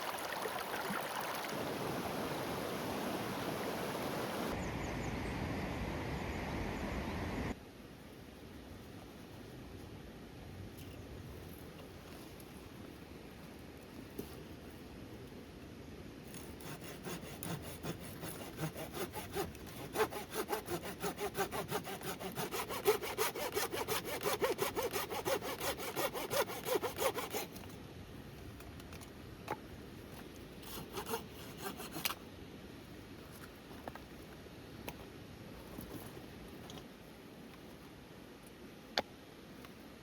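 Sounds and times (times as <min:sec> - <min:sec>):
hand saw cutting wood: 0:16.3 - 0:27.6, 0:30.6 - 0:32.2.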